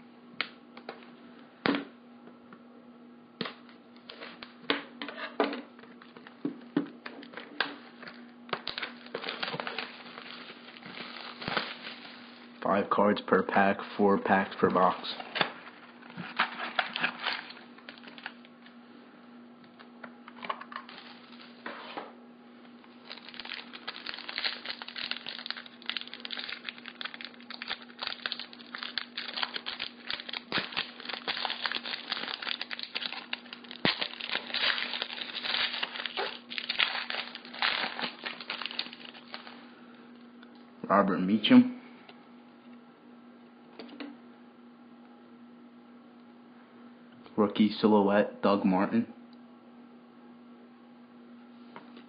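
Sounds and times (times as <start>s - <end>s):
steady low hum: 0.0s - 52.0s
wrapper crinkling and tearing: 8.0s - 12.6s, 16.0s - 18.5s, 20.8s - 21.6s, 22.9s - 39.6s.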